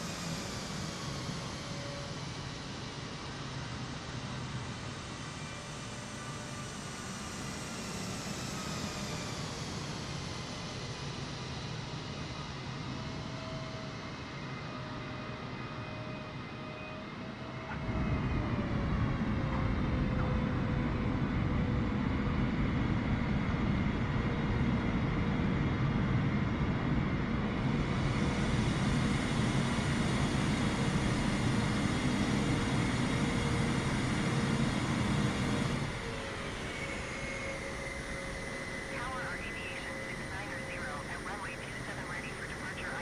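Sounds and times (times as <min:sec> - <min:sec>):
jet engine whine: 0:00.0 - 0:43.0
low jet engine rumble: 0:27.0 - 0:43.0.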